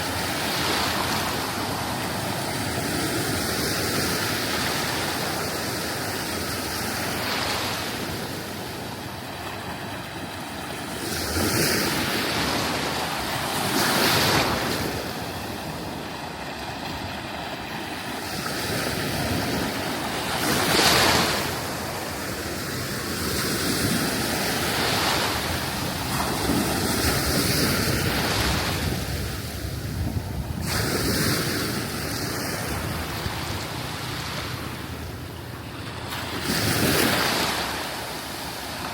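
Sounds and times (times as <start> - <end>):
waves washing onto beach: 0.0 - 38.9
wind on microphone: 10.2 - 35.4.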